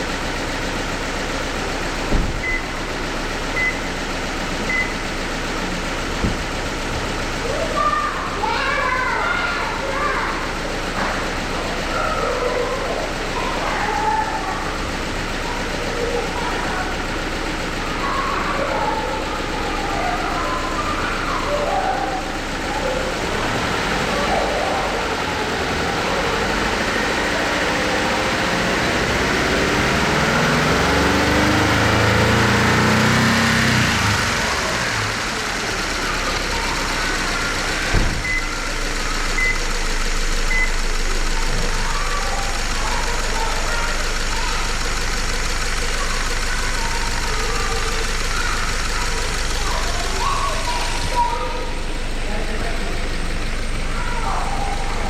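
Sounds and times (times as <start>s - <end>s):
car engine idling: 0.0s - 55.0s
brief thump: 2.1s - 2.5s, 6.1s - 6.5s, 37.9s - 38.3s.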